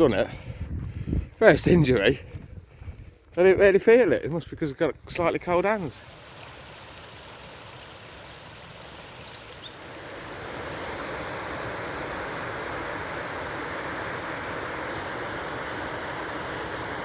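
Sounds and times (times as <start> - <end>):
river water rushing: 6.0 - 17.0
high bird chirps: 8.8 - 10.6.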